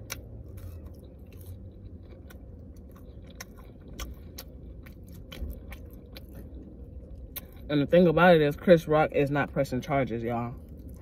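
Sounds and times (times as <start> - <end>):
person chewing food: 0.0 - 7.7, 10.6 - 11.0
steady low hum: 0.0 - 11.0.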